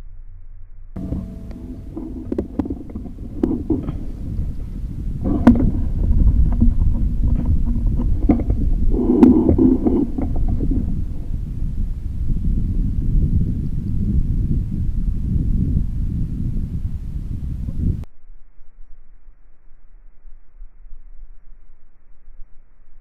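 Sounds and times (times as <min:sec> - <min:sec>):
wind rumble on microphone: 0:01.0 - 0:18.1.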